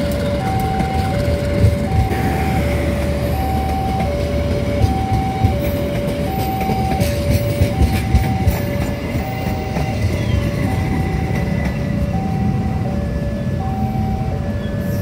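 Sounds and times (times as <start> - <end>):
wheels clicking over rail joints: 0.0 - 13.8
train coaches rumbling past: 0.0 - 15.0
two-tone level-crossing bell: 0.0 - 15.0.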